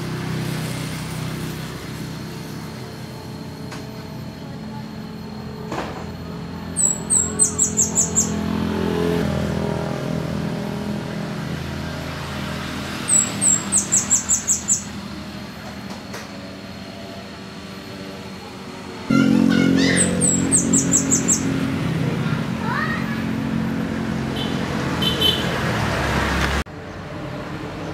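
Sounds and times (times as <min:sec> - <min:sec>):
low engine hum: 0:00.0 - 0:27.9
bird singing high-pitched phrases: 0:06.6 - 0:08.5, 0:13.0 - 0:15.0, 0:19.1 - 0:21.7.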